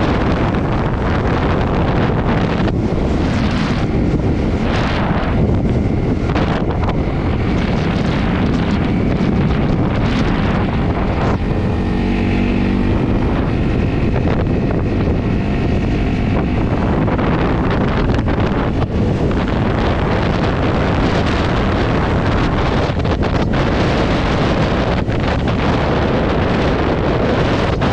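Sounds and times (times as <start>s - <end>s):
motorcycle engine: 0.0s - 27.9s
wind buffeting microphone: 0.0s - 27.9s.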